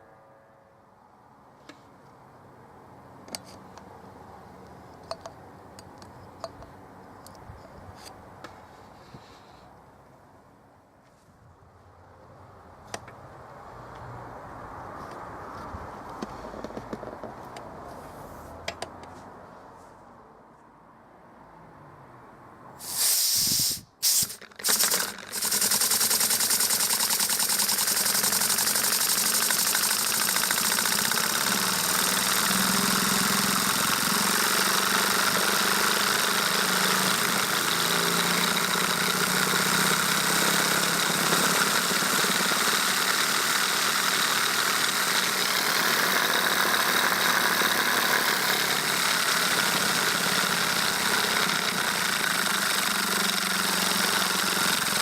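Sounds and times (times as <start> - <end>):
compressed air hissing: 22.8 - 37.1.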